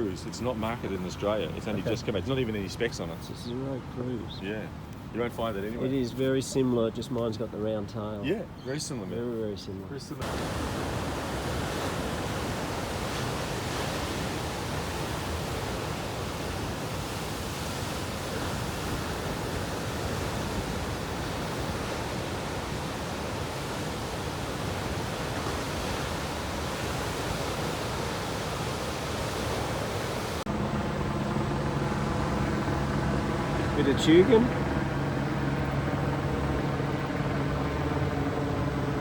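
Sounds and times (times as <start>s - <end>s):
ocean surf rushing: 10.2s - 39.0s.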